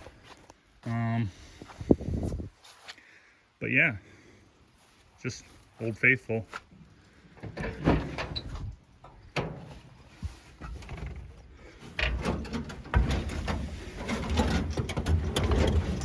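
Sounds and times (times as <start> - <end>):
clicks and knocks: 7.4 - 16.0
truck engine starting and running: 7.4 - 16.0.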